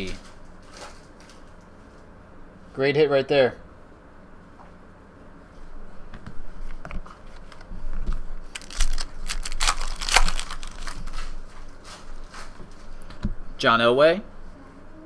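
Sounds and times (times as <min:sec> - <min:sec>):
foil packaging crinkling: 0:00.0 - 0:01.6, 0:08.4 - 0:12.5.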